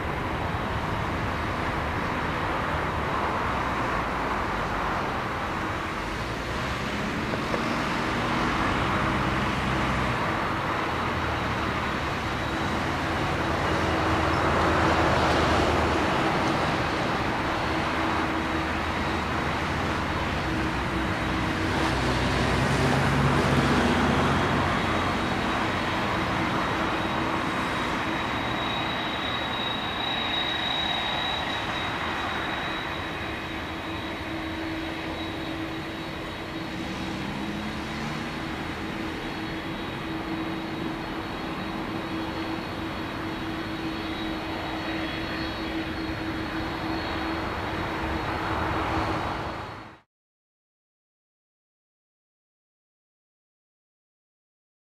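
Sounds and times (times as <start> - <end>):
distant jet engines rumbling: 0.0 - 49.9.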